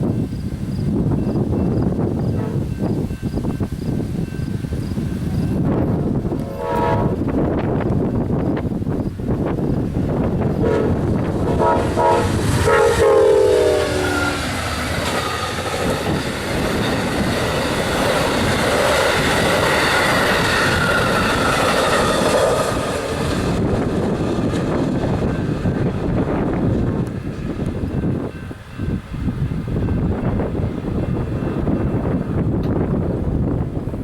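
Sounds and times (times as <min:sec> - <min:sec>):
diesel locomotive passing: 0:00.0 - 0:34.0
train wheels rumbling on rails: 0:00.0 - 0:34.0
train air horn blasts: 0:02.3 - 0:02.8, 0:06.2 - 0:07.4, 0:10.5 - 0:14.6.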